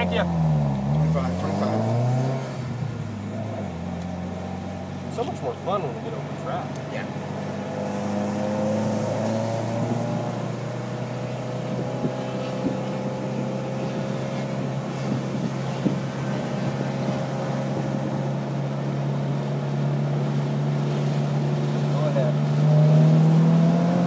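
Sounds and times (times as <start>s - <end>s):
car engine running: 0.0s - 24.0s
road and wind noise: 0.0s - 24.0s.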